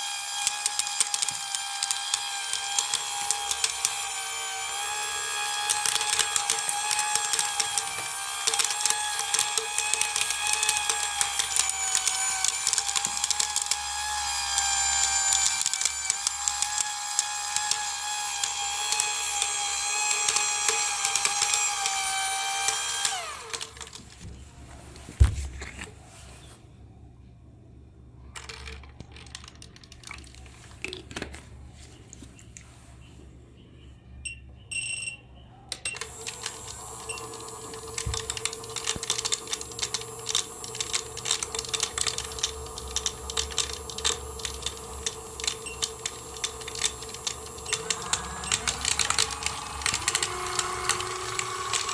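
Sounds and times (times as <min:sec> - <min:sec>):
small electric motor whining: 0:00.0 - 0:24.0, 0:40.4 - 0:51.9
steady hum: 0:43.7 - 0:51.9.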